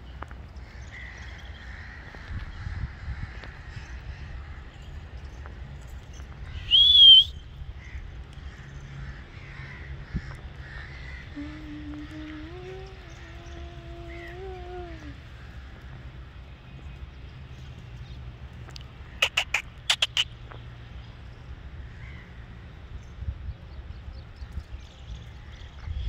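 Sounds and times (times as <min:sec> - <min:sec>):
faint birdsong: 0:00.0 - 0:26.0
loud bird call: 0:06.5 - 0:08.0, 0:19.1 - 0:20.4.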